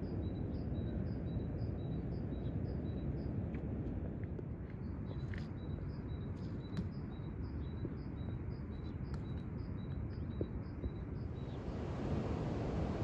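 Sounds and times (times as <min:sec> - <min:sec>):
low outdoor rumble: 0:11.4 - 0:13.0.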